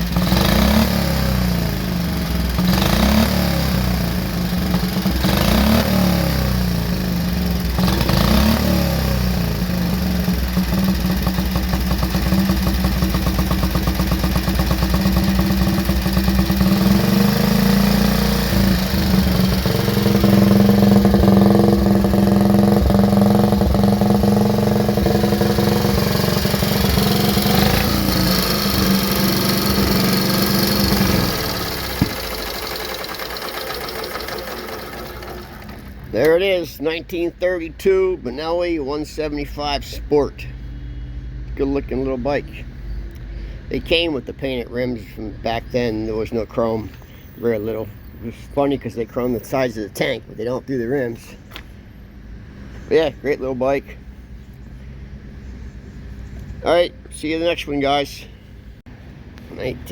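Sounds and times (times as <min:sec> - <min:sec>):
motorcycle engine revving and idling: 0:00.0 - 0:37.5.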